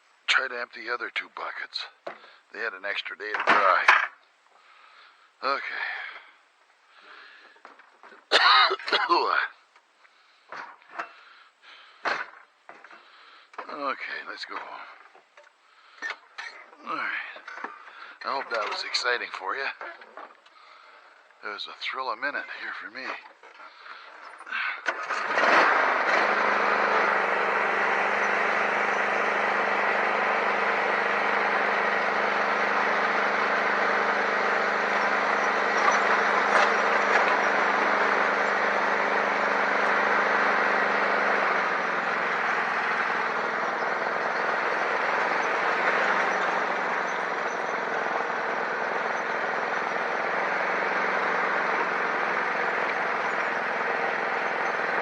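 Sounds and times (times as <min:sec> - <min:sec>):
vehicle engine starting and running: 0:00.0 - 0:08.3, 0:09.1 - 0:55.0.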